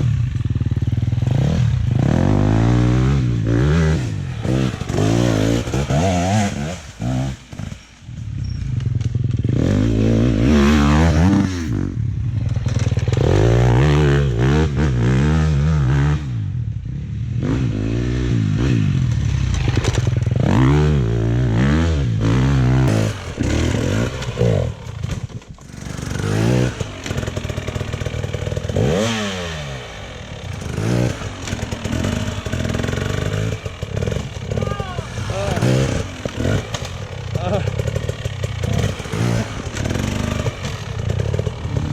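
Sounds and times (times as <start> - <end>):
dirt bike engine revving: 0.0 - 16.4, 17.3 - 41.9
bike clattering over rough ground: 12.3 - 13.7, 19.0 - 20.9, 22.8 - 41.9.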